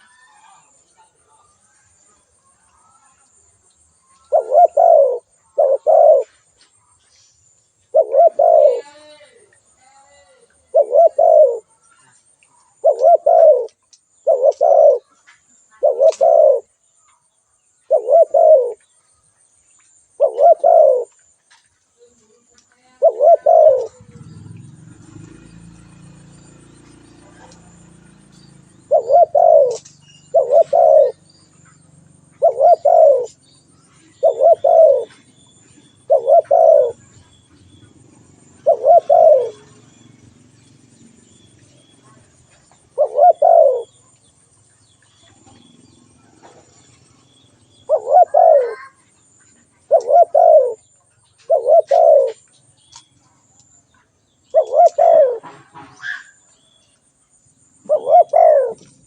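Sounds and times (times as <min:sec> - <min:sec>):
dove cooing: 0:04.3 - 0:06.6, 0:07.9 - 0:09.2, 0:09.9 - 0:11.8, 0:12.7 - 0:15.2, 0:15.8 - 0:16.8, 0:17.9 - 0:18.8, 0:20.2 - 0:21.2, 0:22.9 - 0:40.0, 0:41.2 - 0:44.2, 0:47.8 - 0:52.5, 0:54.5 - 0:56.4, 0:57.8 - 0:59.0.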